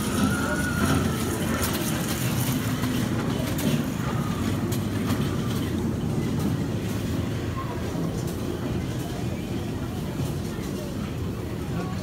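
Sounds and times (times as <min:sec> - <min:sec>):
miniature train rumbling on track: 0:00.0 - 0:12.0.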